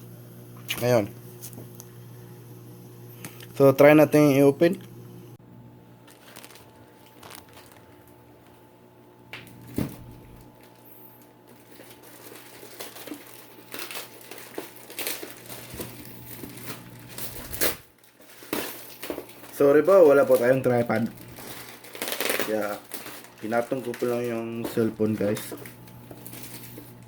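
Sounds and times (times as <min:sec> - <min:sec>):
plastic tearing: 0:06.0 - 0:08.2, 0:09.4 - 0:27.0
plastic packaging crinkling: 0:06.0 - 0:08.6, 0:09.3 - 0:27.0.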